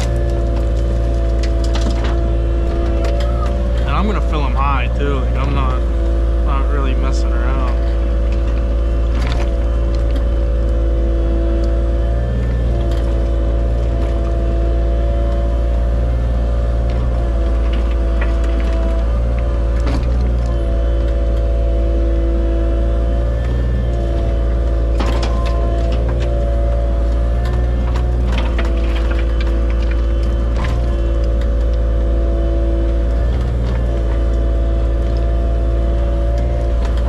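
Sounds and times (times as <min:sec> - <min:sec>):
excavator diesel engine running: 0:00.0 - 0:37.0
sharp knocks and rattles: 0:23.5 - 0:32.1.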